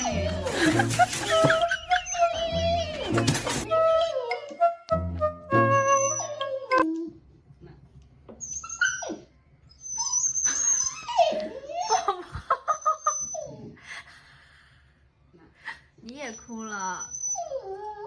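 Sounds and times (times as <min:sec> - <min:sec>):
dog whining and whimpering: 0:05.6 - 0:07.2, 0:08.4 - 0:13.8, 0:16.3 - 0:18.0.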